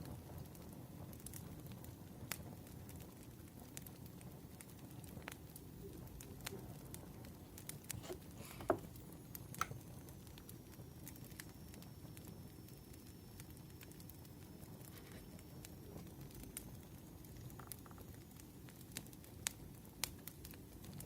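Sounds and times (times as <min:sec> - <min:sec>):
wood fire crackling: 0:00.1 - 0:21.0.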